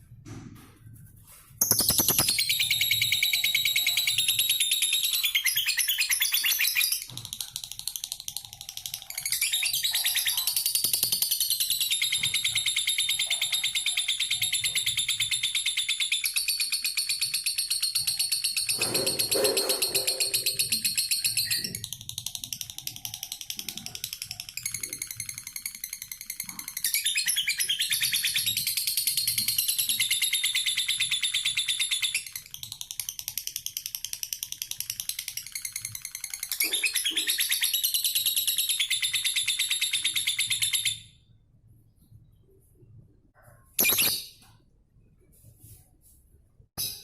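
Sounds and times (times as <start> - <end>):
lovebird chattering: 1.6 - 41.0, 43.8 - 44.2.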